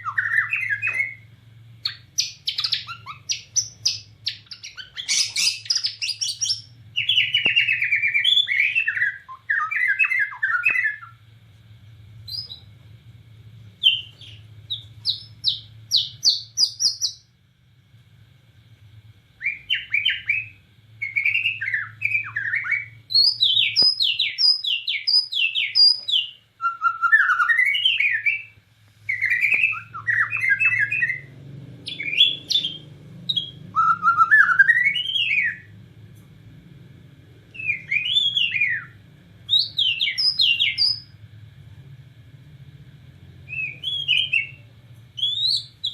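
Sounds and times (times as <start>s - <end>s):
bird singing whistled phrases: 0.0s - 11.2s, 13.8s - 17.2s, 19.4s - 35.7s, 37.6s - 41.1s, 43.5s - 44.6s, 45.2s - 45.9s.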